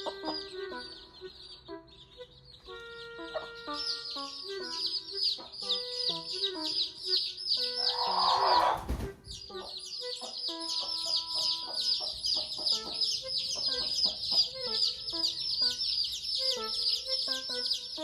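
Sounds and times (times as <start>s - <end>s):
background music: 0.0s - 18.0s
chicks peeping: 0.0s - 18.0s.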